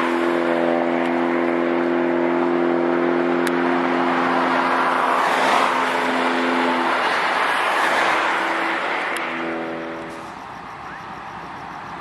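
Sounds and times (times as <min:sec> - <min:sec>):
train wheels rushing on rails: 0:06.7 - 0:12.0.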